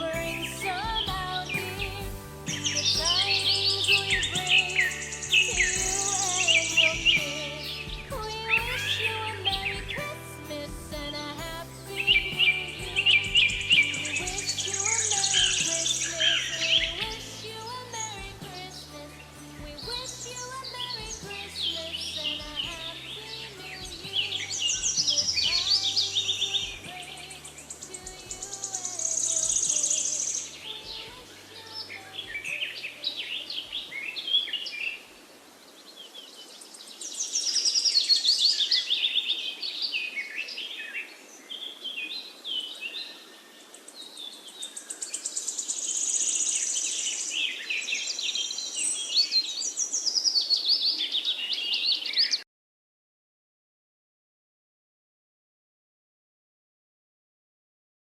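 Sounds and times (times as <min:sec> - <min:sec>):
songbirds chirping and trilling: 0:00.0 - 0:10.4, 0:11.1 - 0:52.4
faint music: 0:00.0 - 0:34.0.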